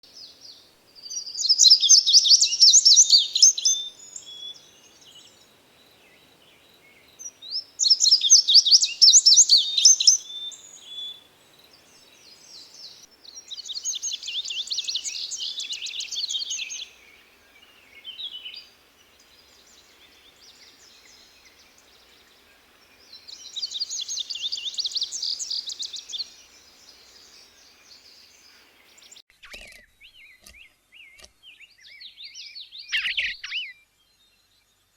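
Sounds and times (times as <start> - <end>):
songbird trilling: 1.0 - 5.4, 6.8 - 11.2, 11.8 - 30.4.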